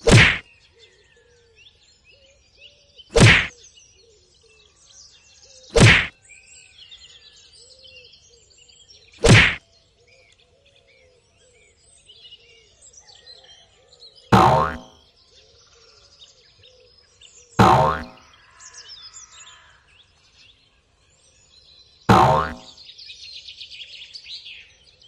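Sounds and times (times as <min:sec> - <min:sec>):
sharp whack sound effects: 0:00.0 - 0:00.4, 0:03.1 - 0:03.5, 0:05.7 - 0:06.1, 0:09.2 - 0:09.6, 0:14.4 - 0:14.9, 0:17.6 - 0:18.2, 0:22.1 - 0:22.7
faint birdsong: 0:00.0 - 0:25.0.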